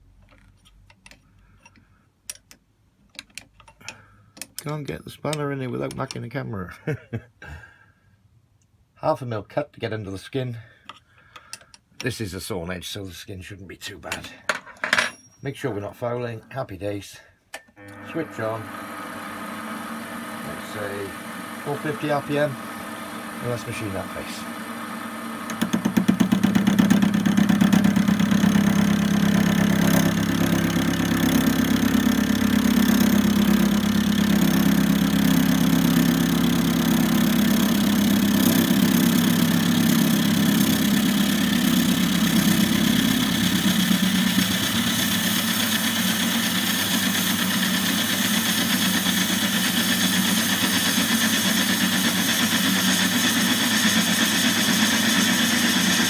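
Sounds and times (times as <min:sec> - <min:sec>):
lathe cutting metal: 0:18.0 - 0:56.0.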